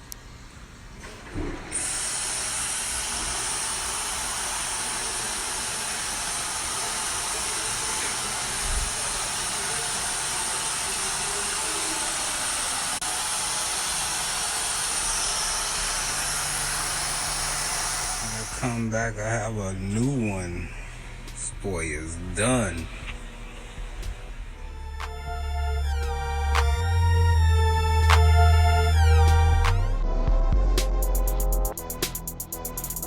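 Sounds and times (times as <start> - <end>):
steady hiss: 1.8 - 19.2.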